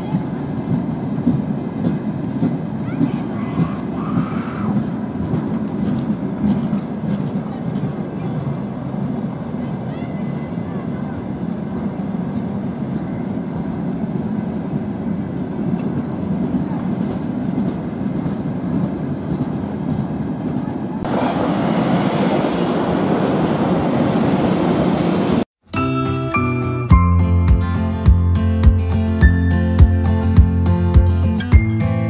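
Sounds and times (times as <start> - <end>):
freight train rolling past: 0.0 - 25.5
passenger train passing: 0.0 - 25.5.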